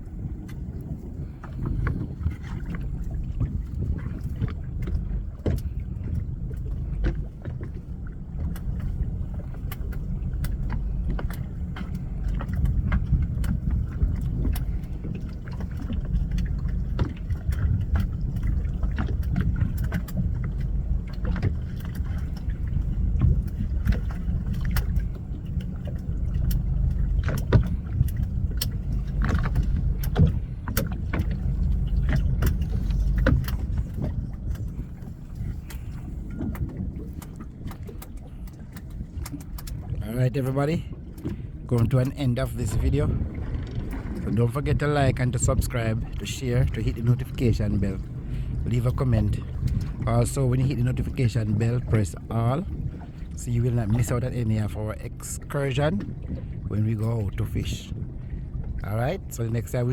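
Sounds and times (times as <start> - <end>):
wind and sea rumble: 0.0 - 59.9
sharp knocks and clicks: 9.6 - 39.8.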